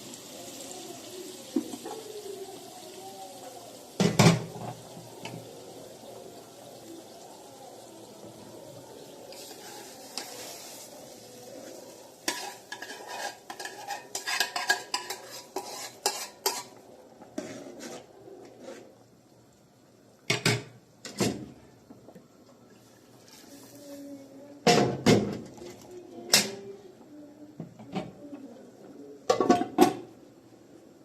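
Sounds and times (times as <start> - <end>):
utensils clinking on crockery: 12.3 - 16.8.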